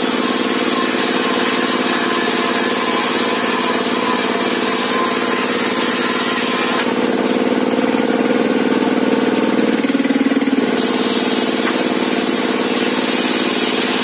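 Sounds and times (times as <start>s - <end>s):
table saw engine running: 0.0s - 14.0s.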